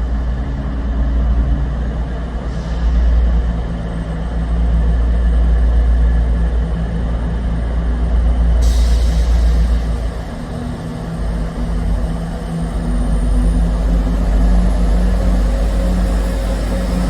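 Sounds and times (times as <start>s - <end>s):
diesel train engine rumbling: 0.0s - 17.0s
hiss: 2.5s - 3.4s, 8.6s - 12.0s.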